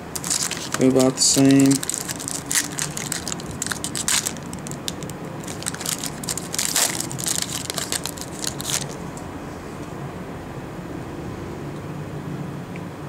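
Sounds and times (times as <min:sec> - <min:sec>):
packaging crinkling and tearing: 0:00.0 - 0:09.0.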